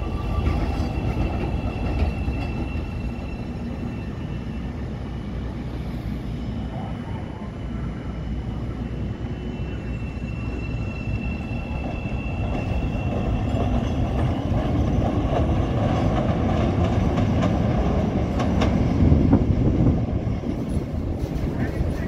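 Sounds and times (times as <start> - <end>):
train wheel squeal: 0.0 - 16.2
train wheels rumbling on rail: 0.0 - 22.0.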